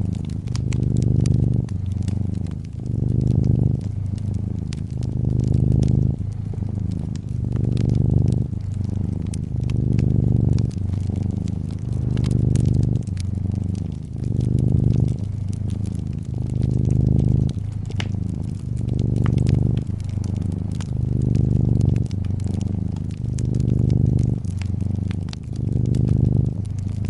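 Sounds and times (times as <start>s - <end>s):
cat purring: 0.0s - 27.0s
fireplace fire crackling: 0.0s - 27.0s.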